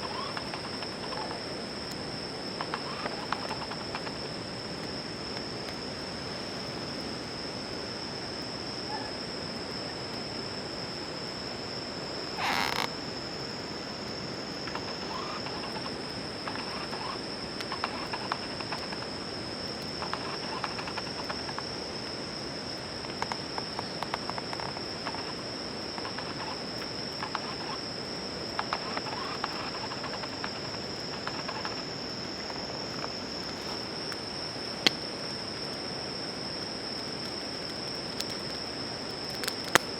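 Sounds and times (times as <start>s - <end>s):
insects trilling: 0.0s - 39.9s
wood fire crackling: 27.9s - 39.9s.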